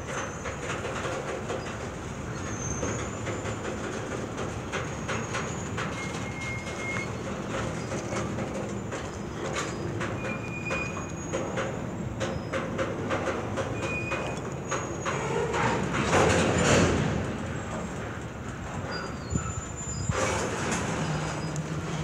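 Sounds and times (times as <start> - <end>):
thin brake squeals: 0.0 - 0.8, 1.5 - 4.1, 4.8 - 12.8, 13.7 - 16.0, 18.8 - 22.0
freight train rolling past: 0.0 - 22.0
wheels clacking over rail joints: 0.0 - 22.0.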